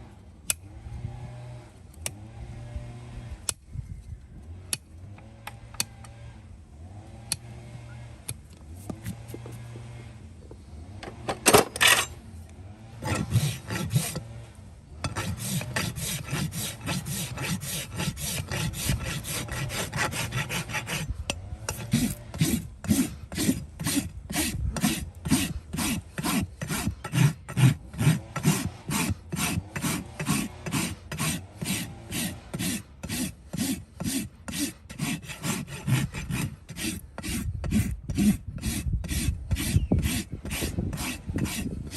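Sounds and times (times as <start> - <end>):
rasp filing a hoof: 8.8 - 9.8, 13.0 - 41.9.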